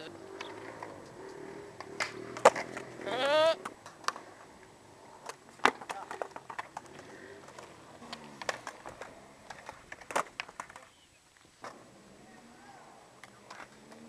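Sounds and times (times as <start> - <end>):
skateboard clacking on ground: 0.1 - 12.0, 13.2 - 14.0.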